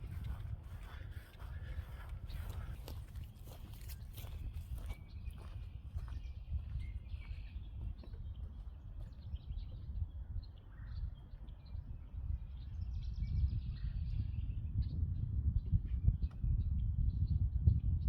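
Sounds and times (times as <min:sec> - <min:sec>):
low rumble of outdoor noise: 0:00.0 - 0:04.1
songbirds chirping: 0:00.1 - 0:15.0.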